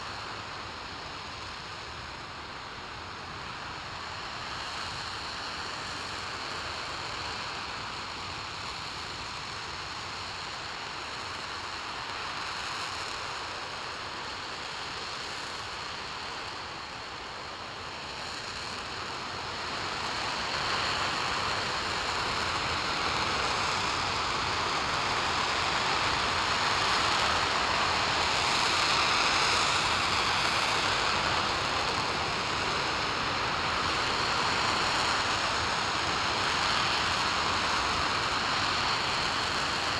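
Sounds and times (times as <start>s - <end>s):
rocket engine roaring: 20.0s - 39.9s.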